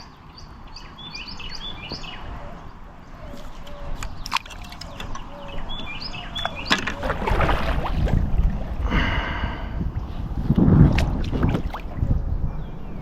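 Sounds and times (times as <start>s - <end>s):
bird chirps: 0.0s - 7.2s.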